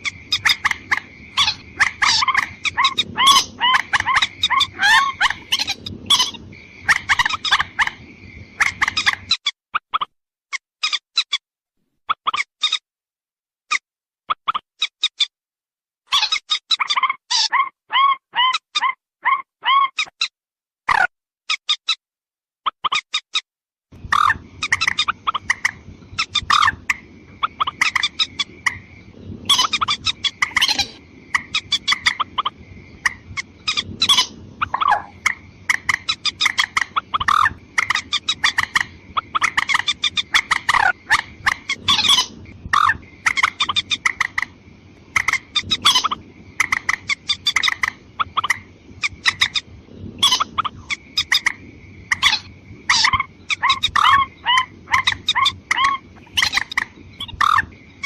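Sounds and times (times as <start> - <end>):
rail clucking and chattering calls: 0.0 - 11.4, 16.1 - 20.3, 24.0 - 58.0
low background hiss: 24.0 - 58.0.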